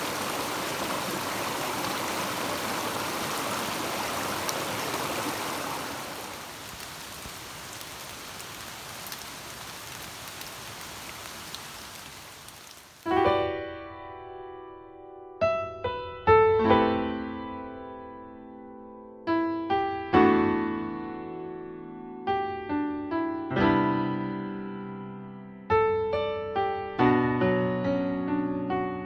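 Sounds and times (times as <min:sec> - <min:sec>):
steady rain falling: 0:00.0 - 0:13.2
piano music: 0:13.1 - 0:29.0.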